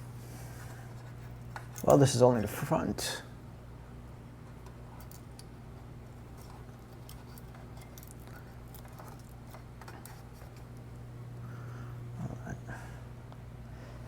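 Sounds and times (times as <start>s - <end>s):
steady low hum: 0.0s - 14.0s
small parts and tools clicking: 4.6s - 10.8s.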